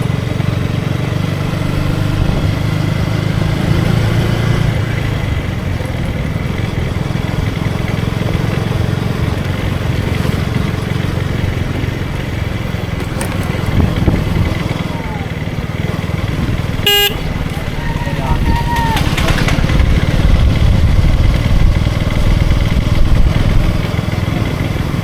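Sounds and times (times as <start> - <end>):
motorcycle engine running: 0.0 - 25.0
road noise: 0.0 - 25.0
wind noise: 13.2 - 14.6, 16.4 - 23.8.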